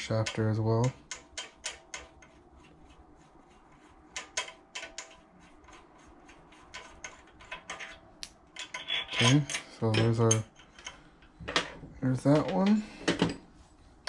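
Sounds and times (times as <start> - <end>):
hand wrench clicking: 0.0 - 2.4.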